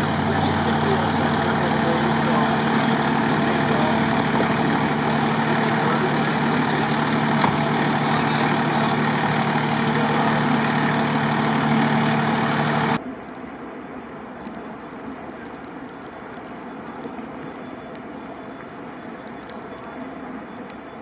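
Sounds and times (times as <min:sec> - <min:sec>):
heavy engine idling: 0:00.0 - 0:13.0.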